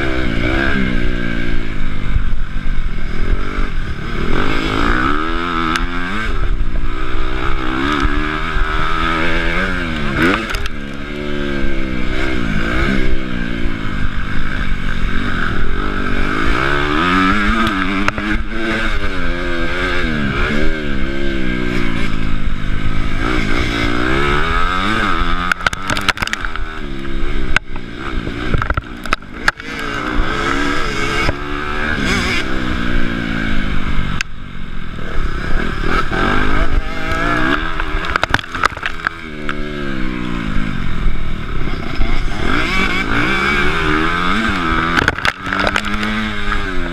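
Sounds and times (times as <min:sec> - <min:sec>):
motocross engine revving: 0:00.0 - 0:46.9
sharp clattering knocks: 0:44.9 - 0:46.2.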